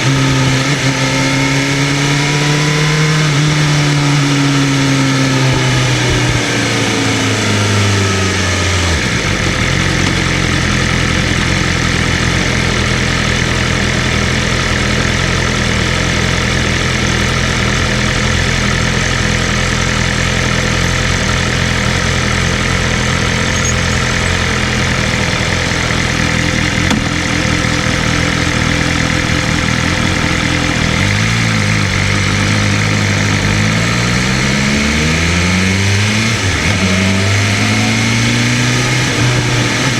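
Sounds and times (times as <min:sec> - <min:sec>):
motorcycle engine idling: 0:00.0 - 0:34.5
throttle blip: 0:23.4 - 0:24.2.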